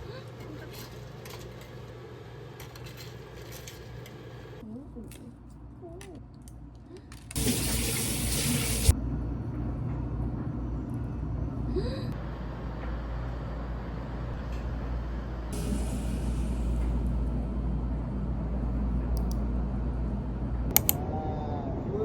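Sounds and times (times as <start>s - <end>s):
water running: 7.4s - 9.0s
steady low hum: 8.8s - 21.0s.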